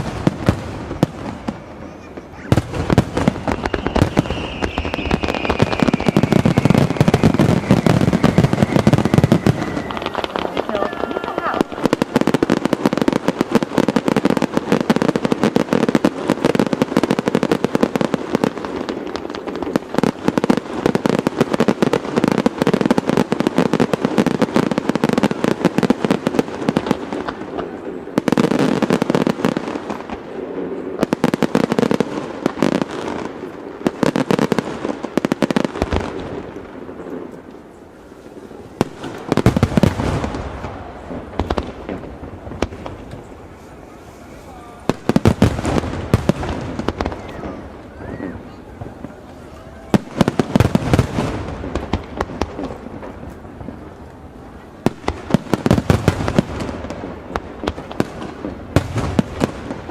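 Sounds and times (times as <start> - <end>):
deep firework booms: 0.0 - 37.3, 38.2 - 59.9
fireworks bangs and crackles: 0.0 - 59.9.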